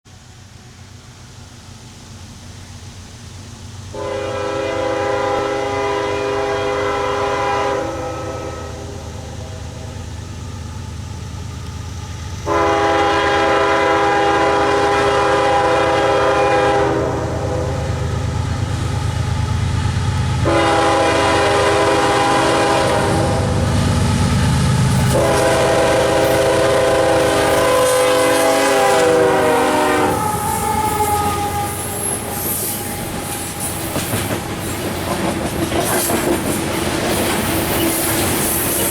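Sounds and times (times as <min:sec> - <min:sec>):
diesel engines rumbling: 0:00.1 - 0:38.9
locomotive air horn blasts: 0:03.9 - 0:10.0, 0:12.4 - 0:18.2, 0:20.4 - 0:33.8
train wheels clattering over rail joints: 0:30.1 - 0:38.9.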